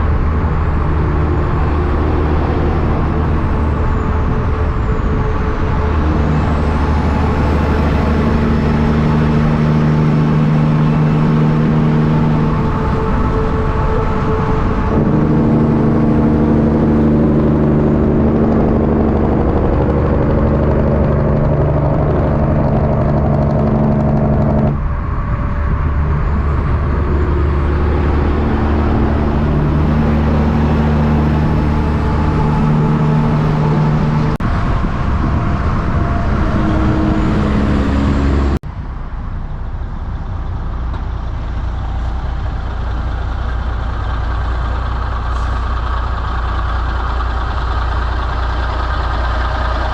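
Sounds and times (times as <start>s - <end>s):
truck diesel engines running: 0.0s - 49.9s.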